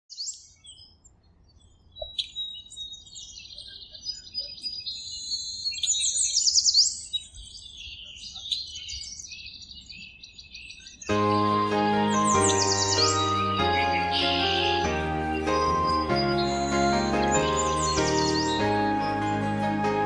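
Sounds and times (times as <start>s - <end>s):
birds chirping and singing: 0.1s - 20.0s
downward-sweeping bird notes: 11.1s - 20.0s.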